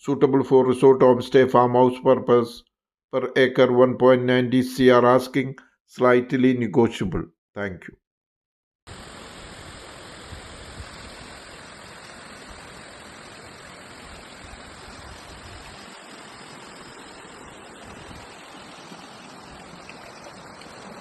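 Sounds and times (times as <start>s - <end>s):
flowing stream water: 8.9s - 21.0s.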